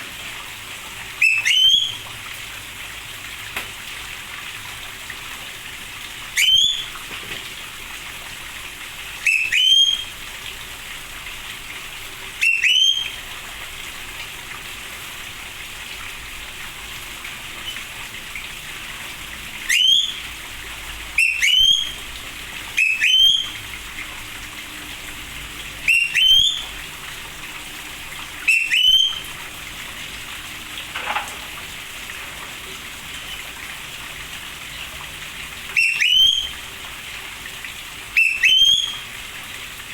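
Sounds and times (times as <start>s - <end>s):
rain hissing: 0.0s - 39.9s
bird whistled call: 1.2s - 2.0s, 6.4s - 7.0s, 9.2s - 10.1s, 12.4s - 13.2s, 19.7s - 20.2s, 21.2s - 22.2s, 22.8s - 23.6s, 25.9s - 26.8s, 28.4s - 29.4s, 35.8s - 36.6s, 38.2s - 39.1s.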